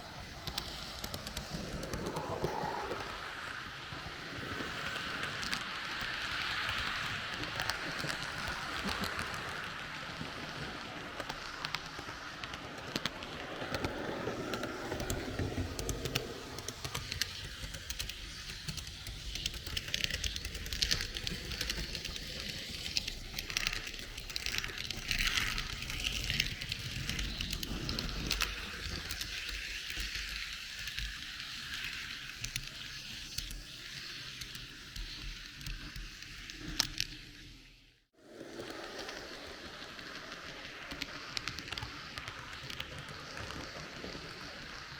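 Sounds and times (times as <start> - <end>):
model train rattling on track: 0.0 - 36.5, 38.4 - 44.9.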